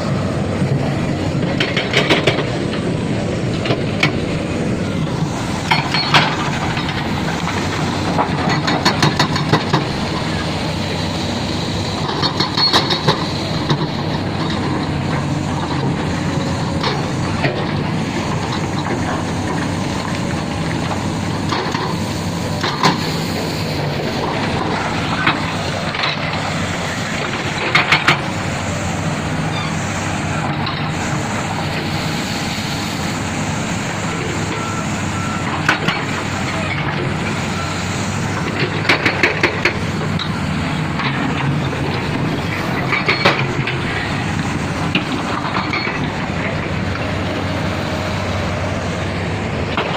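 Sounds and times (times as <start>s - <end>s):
diesel engine running: 0.0s - 49.9s
sharp metal clanks and knocks: 5.6s - 9.9s.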